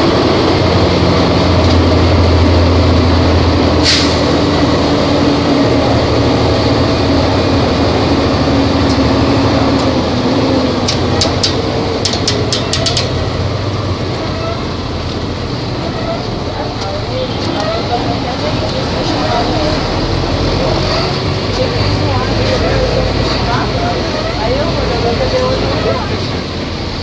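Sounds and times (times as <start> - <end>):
bus engine humming: 0.0 - 27.0
sharp clicks: 10.8 - 13.2.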